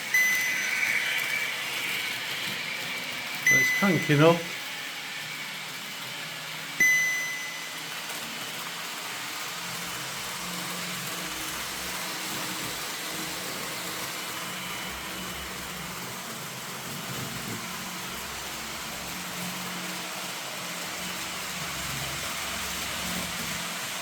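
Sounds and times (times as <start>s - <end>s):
sharp ringing tone: 0.0s - 2.6s, 3.4s - 4.5s, 6.8s - 7.9s
model train running: 0.0s - 24.0s.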